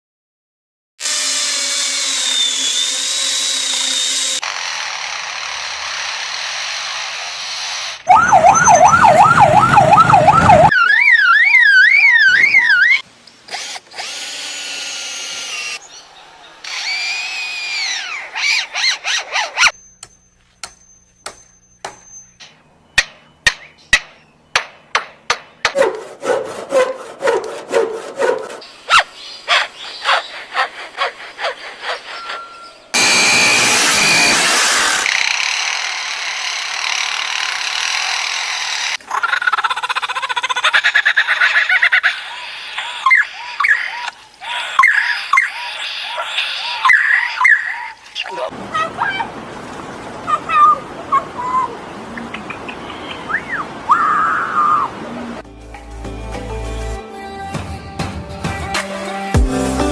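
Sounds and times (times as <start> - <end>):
lyrebird mimicking power tool: 1.0 - 9.2, 12.2 - 15.8, 16.6 - 22.2, 25.6 - 48.6
lyrebird warbling siren call: 8.1 - 13.0, 42.2 - 49.2
lyrebird sharp clicks: 52.2 - 53.2
bird whistled calls: 52.4 - 54.9.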